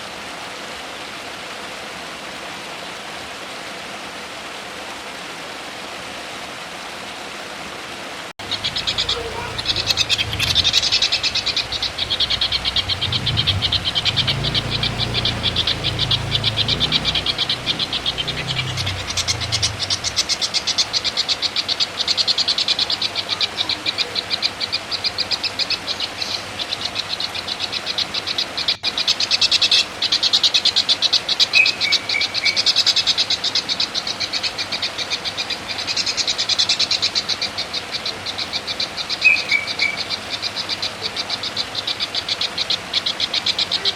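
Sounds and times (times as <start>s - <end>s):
low hum: 8.4s - 21.1s
songbird rattling chatter: 8.4s - 22.0s.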